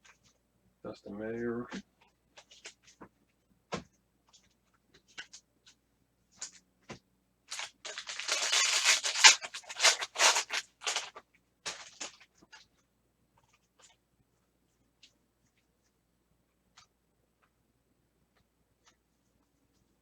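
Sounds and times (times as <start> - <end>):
card wrapper crinkling: 7.5 - 12.6.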